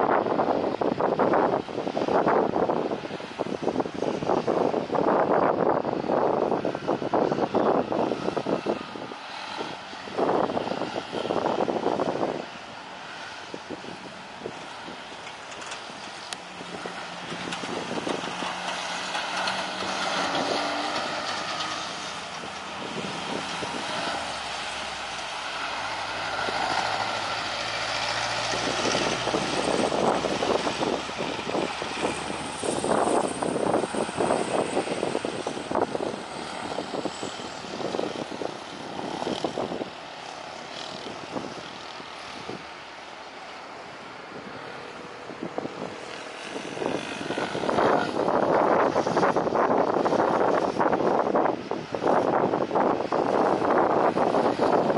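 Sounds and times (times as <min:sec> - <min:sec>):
wind buffeting microphone: 0:00.0 - 0:54.9
jet engines roaring: 0:06.8 - 0:49.4.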